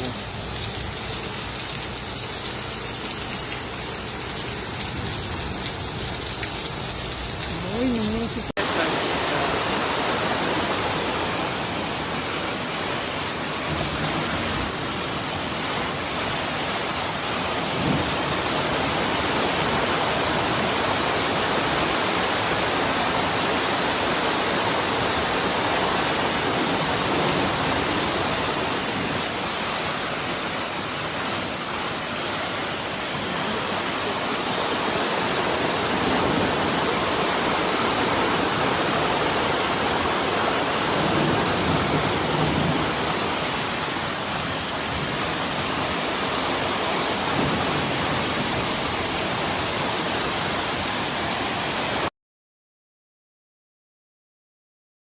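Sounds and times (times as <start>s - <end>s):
heavy rain pouring: 0.0s - 52.1s
rushing floodwater: 0.0s - 52.1s.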